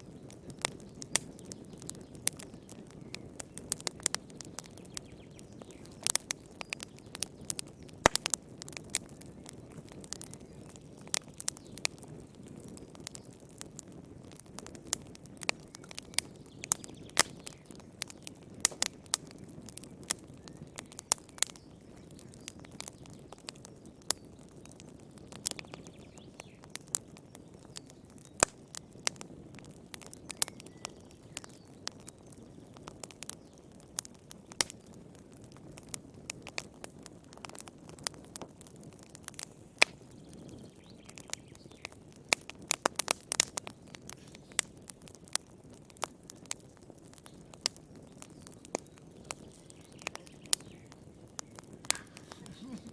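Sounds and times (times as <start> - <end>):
wood crackling and popping: 0.0 - 52.9
low rush of flame: 42.1 - 52.9.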